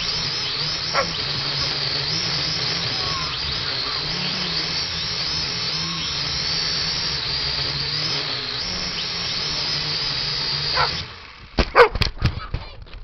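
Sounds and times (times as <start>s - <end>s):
drone propellers whining: 0.0s - 12.1s.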